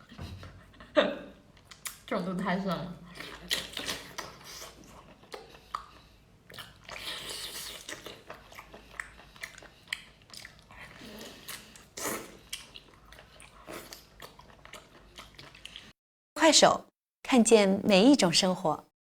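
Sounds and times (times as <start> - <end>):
person chewing: 1.5 - 2.1, 3.1 - 15.9.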